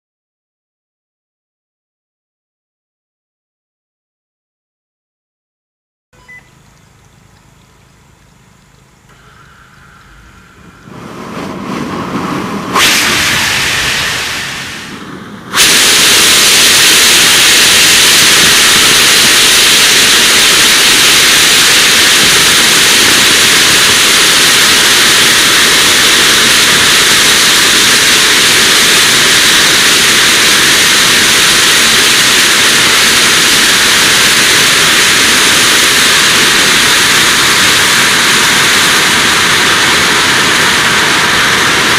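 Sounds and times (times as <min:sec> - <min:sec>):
rising hiss: 0:09.0 - 0:41.9
rocket engine firing: 0:09.1 - 0:41.9.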